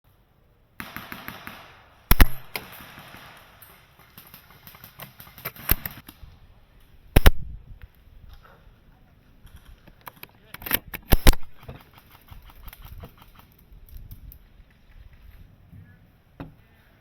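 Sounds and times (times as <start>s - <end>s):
airsoft gun shots: 0.8s - 3.6s, 4.2s - 6.0s, 7.2s - 7.5s, 11.0s - 11.7s.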